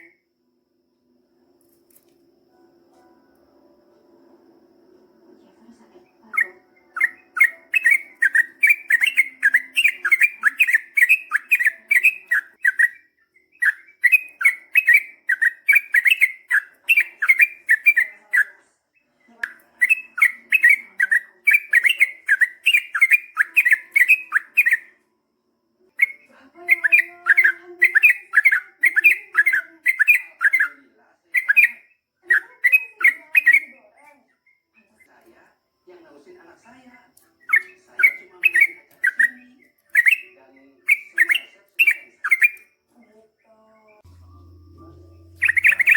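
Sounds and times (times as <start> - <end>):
bulbul singing rapid chattering notes: 6.4 - 18.1, 44.0 - 45.9.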